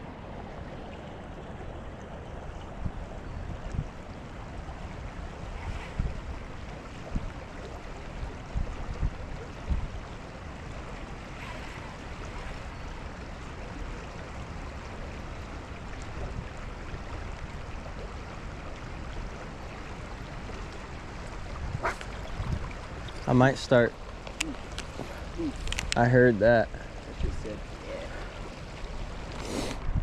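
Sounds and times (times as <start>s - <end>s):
rushing wind: 0.0s - 13.7s, 20.0s - 30.0s
water noise: 0.0s - 30.0s.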